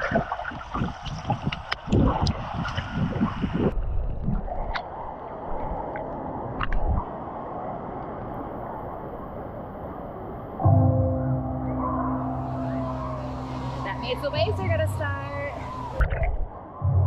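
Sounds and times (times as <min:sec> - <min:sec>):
pool water sloshing: 0:00.0 - 0:03.0, 0:11.3 - 0:16.6.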